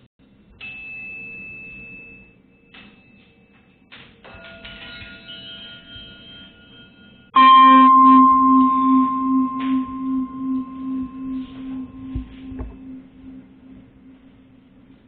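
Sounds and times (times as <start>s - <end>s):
struck metal percussion ringing: 4.4s - 14.9s.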